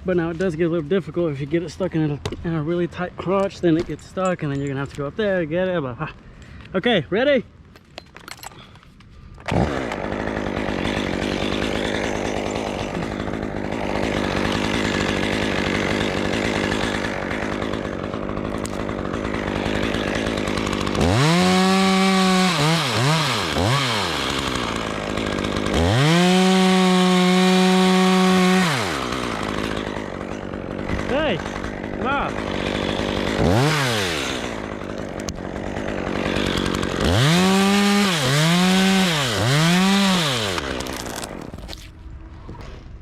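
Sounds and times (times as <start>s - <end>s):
chainsaw idling and revving: 9.4s - 41.9s.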